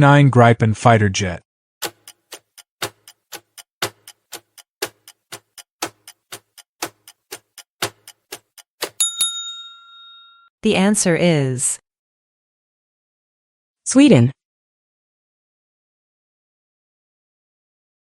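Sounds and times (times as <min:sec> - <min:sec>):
clock ticking: 0:01.8 - 0:09.4
ringing ding: 0:09.0 - 0:10.5.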